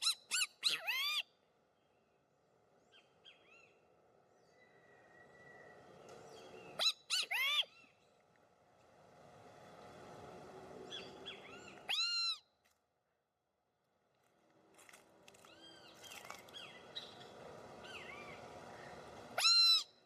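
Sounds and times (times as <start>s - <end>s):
loud bird calls: 0.0s - 2.0s, 4.4s - 8.2s, 10.8s - 12.4s, 15.4s - 20.0s
faint answering bird calls: 4.4s - 8.0s.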